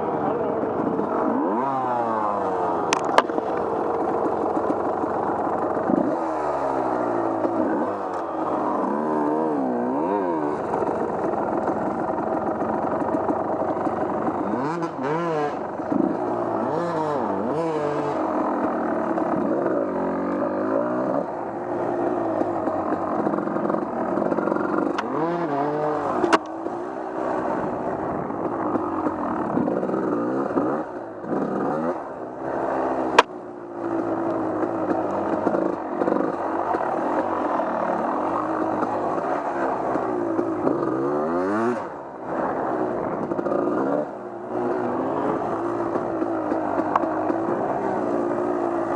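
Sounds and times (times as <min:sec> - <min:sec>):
off-road vehicle engine revving: 0:00.0 - 0:48.9.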